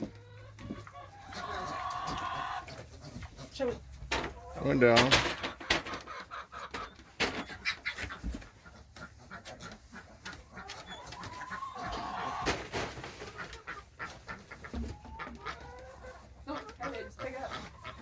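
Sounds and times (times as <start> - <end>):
chickens clucking: 0.0 - 18.0
rustling: 6.8 - 18.0.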